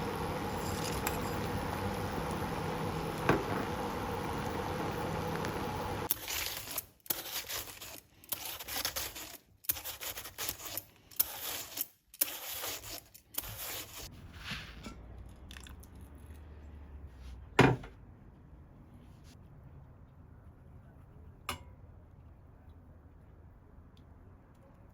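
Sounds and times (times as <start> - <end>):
scraping and rustling strokes: 6.0 - 15.1.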